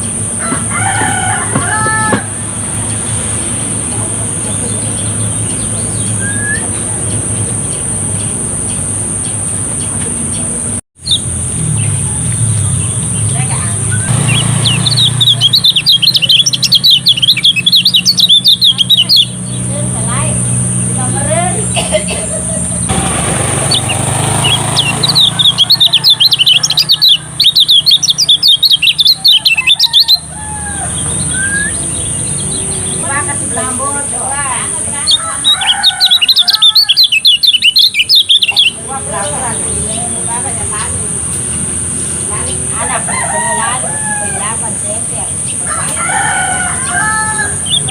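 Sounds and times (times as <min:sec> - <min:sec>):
bird chirping and twittering: 0:00.0 - 0:47.9
soft bird whistles: 0:06.2 - 0:06.8, 0:31.3 - 0:31.9.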